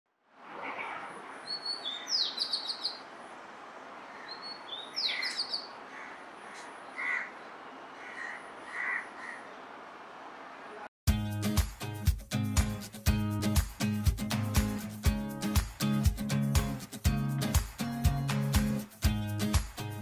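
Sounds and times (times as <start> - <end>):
outdoor background hiss: 0.1 - 10.9
lower bird calls: 0.5 - 3.1, 4.0 - 9.6
high repeated bird chirps: 1.4 - 3.0, 4.2 - 7.2.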